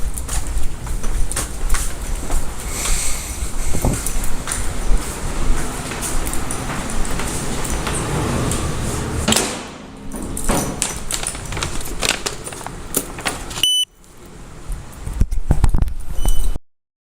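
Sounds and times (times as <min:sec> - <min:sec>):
rustling and rubbing: 0:10.7 - 0:13.6
short high beep: 0:13.6 - 0:13.9.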